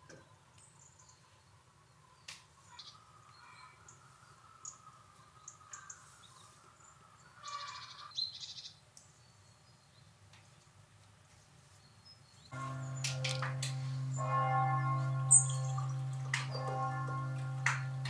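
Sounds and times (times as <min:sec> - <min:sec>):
bird trill: 0:12.6 - 0:18.0.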